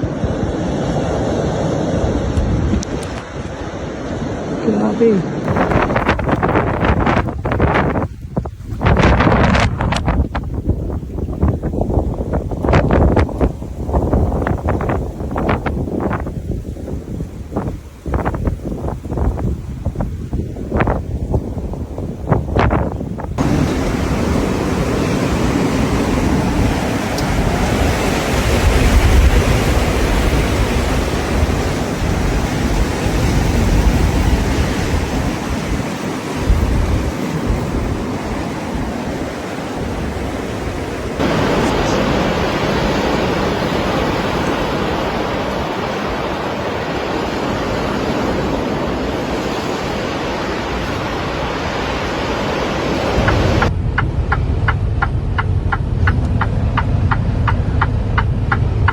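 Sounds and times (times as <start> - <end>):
steady rushing noise: 0.0 - 58.9
low rumble: 53.2 - 58.9.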